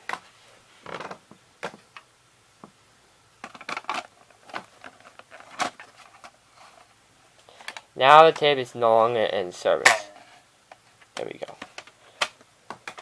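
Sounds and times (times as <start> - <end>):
plastic parts clicking and scraping: 0.8 - 2.1, 3.4 - 6.9, 10.2 - 13.0.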